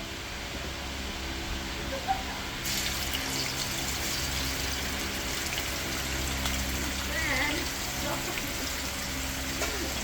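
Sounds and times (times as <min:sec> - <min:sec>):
squid sizzling in hot oil: 0:02.6 - 0:10.0.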